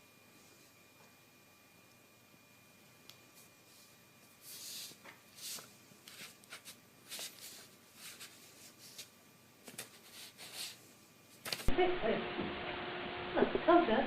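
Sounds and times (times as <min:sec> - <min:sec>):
soft rustling and scraping: 0:03.3 - 0:11.7.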